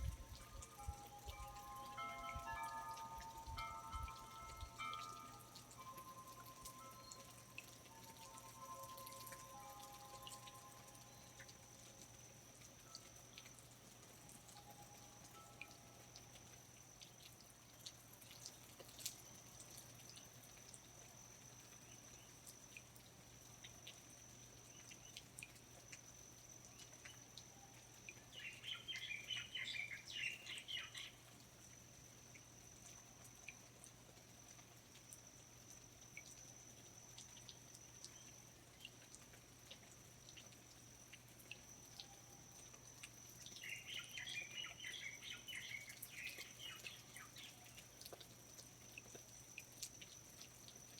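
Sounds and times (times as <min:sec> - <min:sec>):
water dripping: 0:00.0 - 0:50.9
birds singing: 0:28.3 - 0:31.2, 0:43.6 - 0:47.8.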